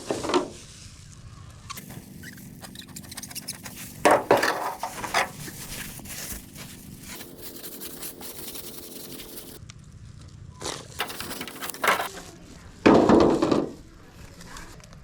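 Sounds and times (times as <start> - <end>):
hard objects scraping and clattering: 1.8 - 9.6, 11.0 - 12.2.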